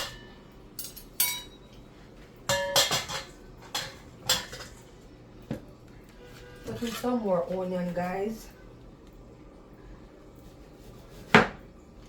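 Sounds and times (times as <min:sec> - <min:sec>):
dishes and utensils clinking: 0:00.0 - 0:04.9, 0:06.4 - 0:07.6.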